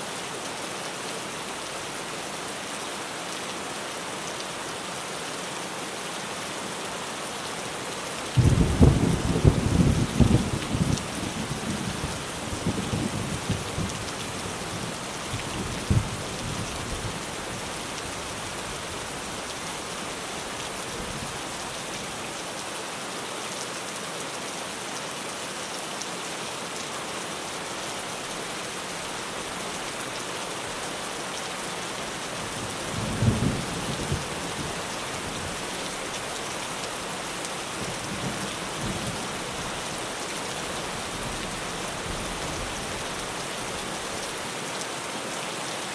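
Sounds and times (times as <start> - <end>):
rain on a tin roof: 0.0 - 45.9
low rumbles of thunder: 8.4 - 12.0, 32.9 - 34.6.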